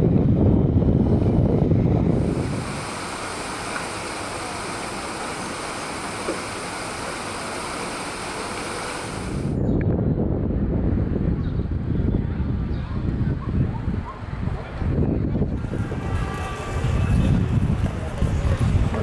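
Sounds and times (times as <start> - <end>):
wind buffeting microphone: 0.0 - 19.0
sea surf washing in: 2.1 - 9.6.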